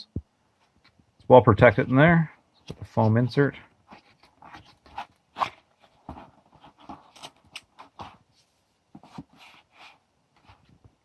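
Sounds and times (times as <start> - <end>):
cardboard box and foam handled: 3.8 - 11.0.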